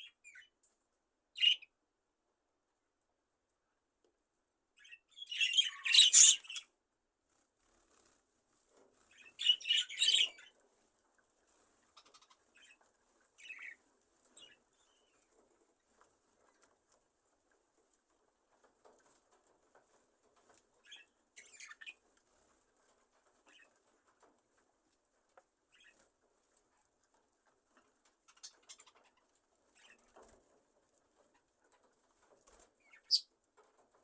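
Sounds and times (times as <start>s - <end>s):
faint bird chirps: 1.4s - 1.8s, 4.8s - 6.7s, 9.1s - 10.5s, 32.8s - 33.3s
small rustles: 6.1s - 34.0s.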